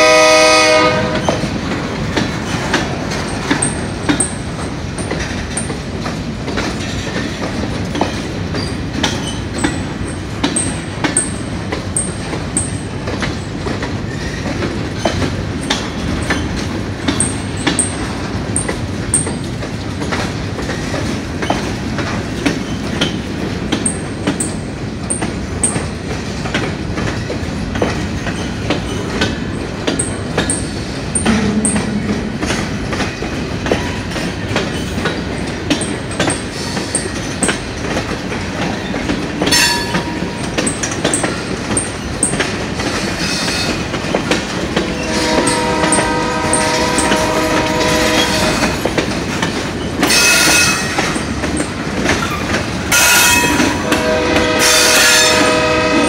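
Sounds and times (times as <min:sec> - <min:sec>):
locomotive air horn: 0:00.0 - 0:01.4, 0:44.9 - 0:48.8, 0:52.9 - 0:56.0
wheels clicking over rail joints: 0:00.6 - 0:56.0.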